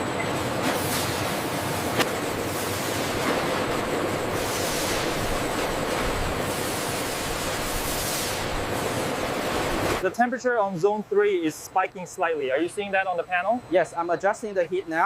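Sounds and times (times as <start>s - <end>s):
faint hum: 0.0s - 15.0s
industrial machinery hiss: 0.6s - 10.0s.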